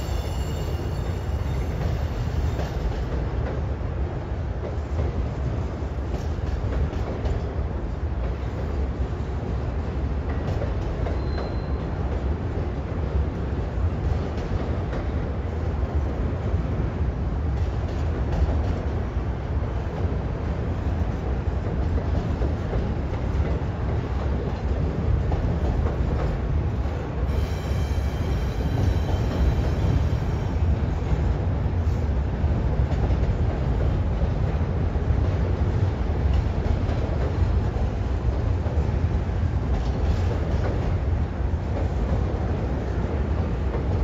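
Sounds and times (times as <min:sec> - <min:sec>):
high-pitched wheel squeal: 0:00.0 - 0:02.6
freight train rumbling on rails: 0:00.0 - 0:44.0.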